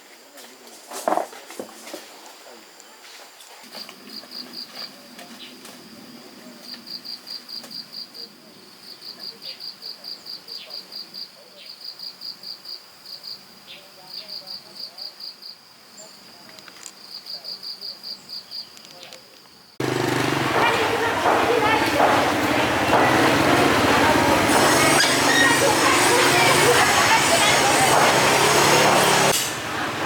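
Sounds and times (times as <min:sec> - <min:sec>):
insects chirping in rapid pulses: 0:03.7 - 0:19.8.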